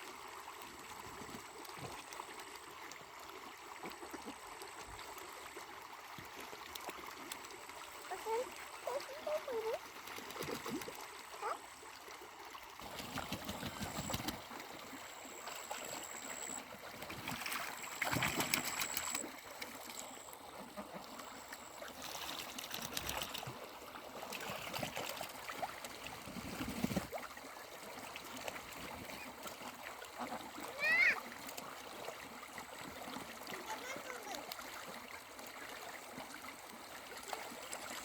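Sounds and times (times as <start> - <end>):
water trickling and splashing: 0.0 - 38.0
thin high tone: 15.0 - 16.7, 17.6 - 19.3.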